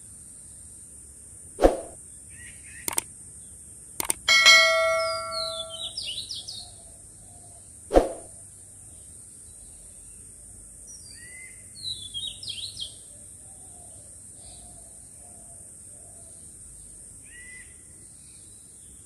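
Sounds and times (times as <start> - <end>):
small birds chirping: 2.3 - 3.1, 4.0 - 6.3.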